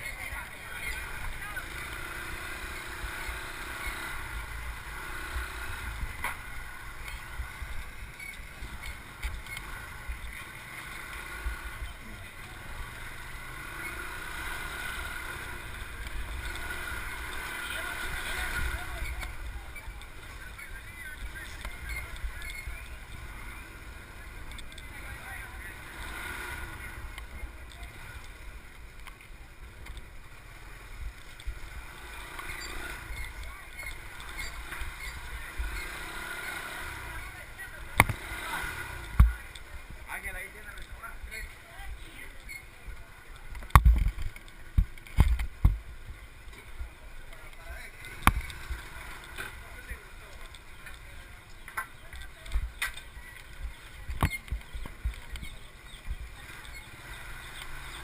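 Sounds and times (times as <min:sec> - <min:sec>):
low vehicle rumble: 0:00.0 - 0:58.0
motorbike engine running: 0:00.0 - 0:58.0
faint clicks: 0:24.2 - 0:24.9, 0:26.0 - 0:30.2, 0:31.0 - 0:31.6, 0:42.3 - 0:58.0.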